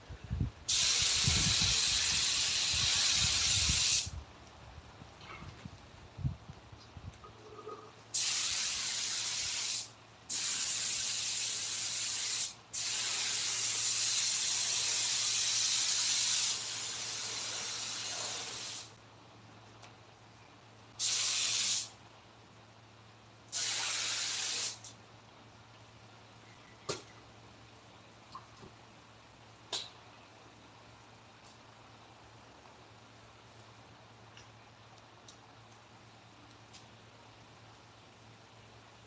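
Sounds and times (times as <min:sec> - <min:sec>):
pressurised spray hissing: 0:00.7 - 0:04.2, 0:08.1 - 0:19.0, 0:21.0 - 0:22.0, 0:23.5 - 0:24.9.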